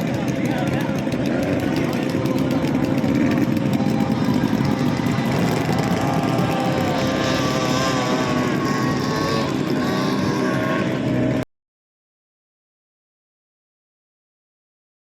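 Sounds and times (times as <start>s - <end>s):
outboard motor running: 0.0s - 11.4s.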